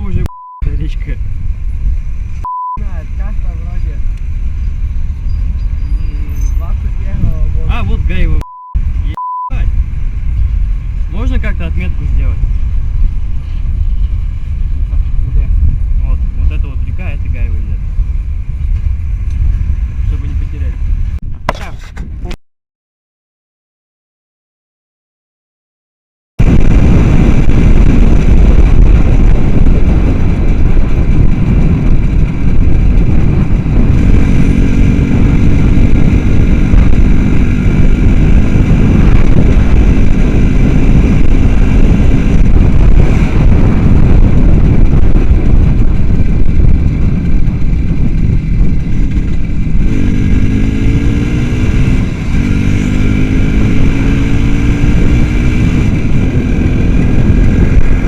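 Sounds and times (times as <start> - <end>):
low rumble: 0.0 - 22.4, 26.4 - 58.0
small motorcycle engine accelerating: 29.0 - 58.0.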